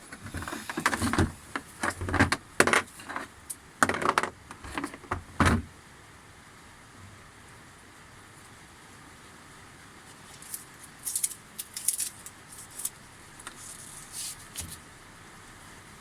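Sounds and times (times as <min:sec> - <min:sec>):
metal parts and tools knocking: 0:00.0 - 0:05.6.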